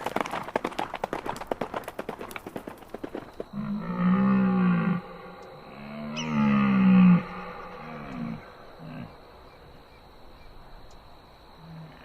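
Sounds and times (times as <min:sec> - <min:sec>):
rapid hoofbeats: 0:00.0 - 0:03.7
low drawn-out animal call: 0:03.6 - 0:10.6.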